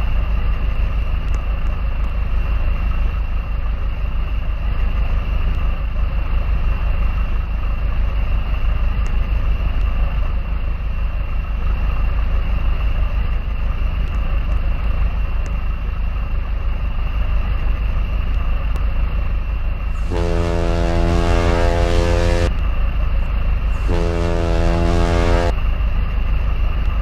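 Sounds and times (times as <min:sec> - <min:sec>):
boat engine running: 0:20.0 - 0:22.5, 0:23.8 - 0:25.5
horn blast: 0:20.0 - 0:22.6, 0:23.7 - 0:25.6.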